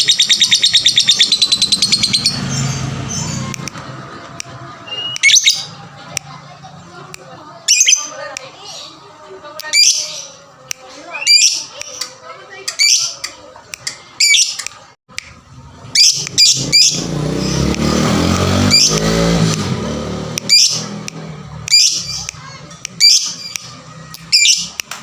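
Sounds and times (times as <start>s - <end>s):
lovebird high-pitched calls: 0.0s - 3.4s, 4.9s - 5.7s, 7.7s - 8.1s, 11.2s - 12.0s, 14.2s - 14.6s, 15.9s - 17.0s, 20.5s - 20.8s, 21.7s - 22.3s, 23.0s - 24.8s.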